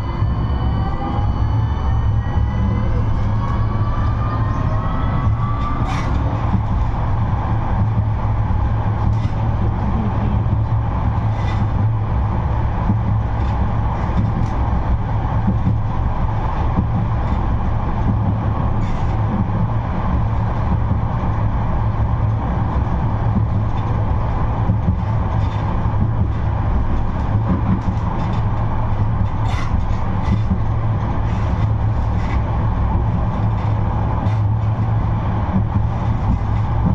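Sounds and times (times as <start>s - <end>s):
tram running hum: 0.0s - 36.9s.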